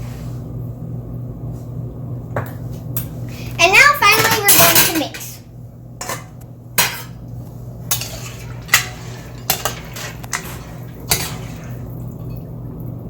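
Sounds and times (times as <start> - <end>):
steady low hum: 0.0 - 13.0
spoon stirring pasta in pot: 7.9 - 12.4.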